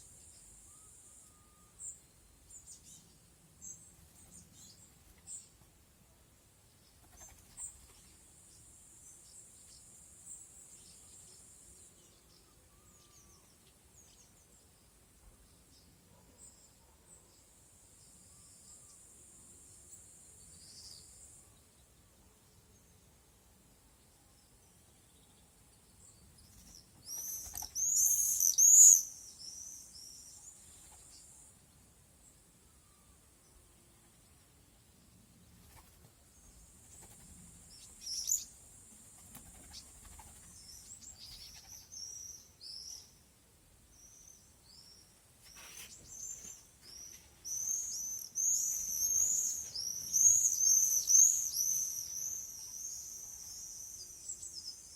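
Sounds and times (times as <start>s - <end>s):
small birds chirping: 0.0s - 5.7s, 6.8s - 8.4s, 25.0s - 31.5s, 35.2s - 54.9s
swallows twittering: 26.4s - 31.3s, 37.0s - 38.6s, 39.6s - 43.1s, 45.5s - 54.9s
faint insect buzz: 32.2s - 43.2s, 43.9s - 54.9s.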